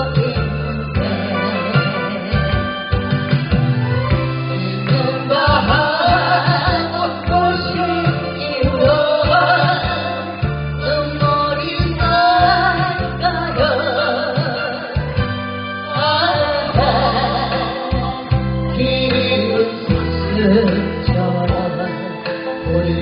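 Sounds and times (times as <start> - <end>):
instrumental accompaniment with bass: 0.0 - 23.0
person singing with vibrato: 0.0 - 23.0.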